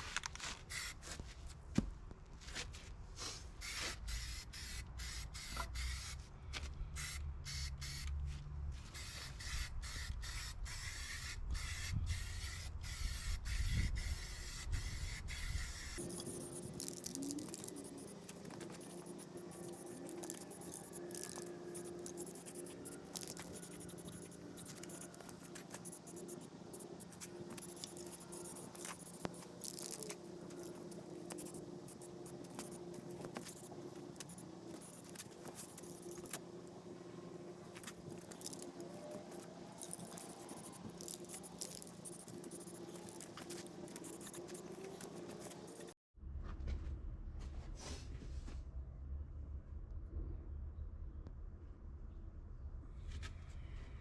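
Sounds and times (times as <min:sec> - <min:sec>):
spray paint hissing: 0:00.7 - 0:01.0, 0:03.6 - 0:06.2, 0:07.0 - 0:08.1, 0:08.9 - 0:36.4, 0:37.7 - 0:46.0
low hum: 0:46.2 - 0:54.0
low rumble: 0:46.2 - 0:54.0.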